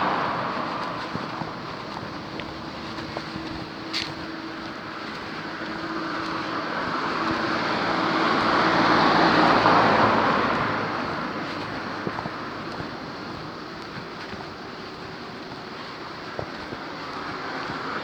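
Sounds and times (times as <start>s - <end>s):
vehicle passing by: 0.0s - 3.3s, 5.5s - 13.1s.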